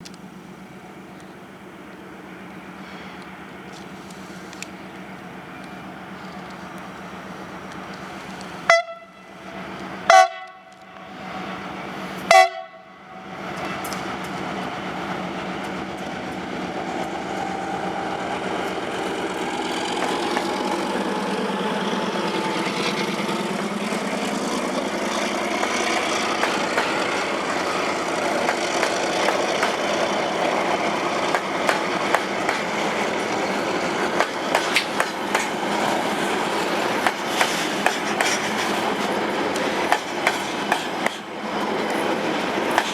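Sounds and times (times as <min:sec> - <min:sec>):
freight train rumble: 0:00.0 - 0:42.9
train wheels clacking: 0:02.8 - 0:42.9
locomotive horn blasts: 0:08.7 - 0:09.4, 0:10.1 - 0:11.2, 0:12.3 - 0:13.2.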